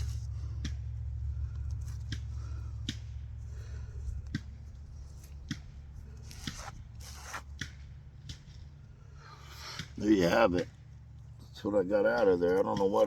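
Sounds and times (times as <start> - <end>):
sharp handling clicks and scrapes: 0.0 - 10.0
steady low rumble: 0.0 - 13.0.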